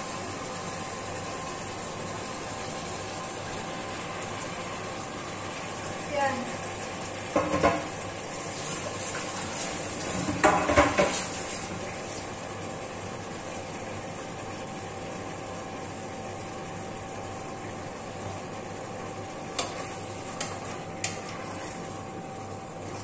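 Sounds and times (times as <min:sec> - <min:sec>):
chicken sizzling in a pot: 0:00.0 - 0:12.6.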